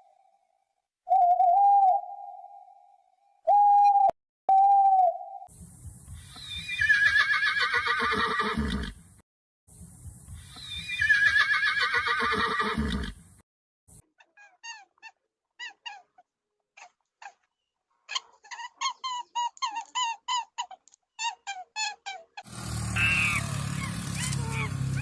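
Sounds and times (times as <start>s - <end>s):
sharp yelping calls: 18.1s - 25.0s.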